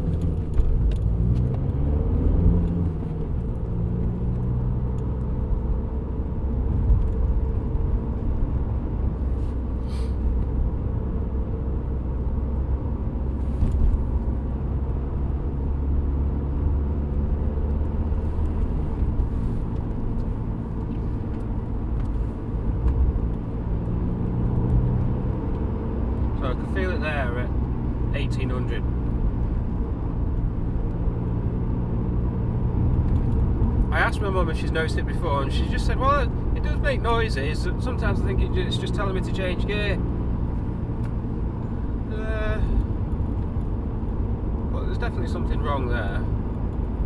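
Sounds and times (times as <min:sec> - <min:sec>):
road rumble: 0:00.0 - 0:47.0
diesel engine running: 0:02.7 - 0:47.0.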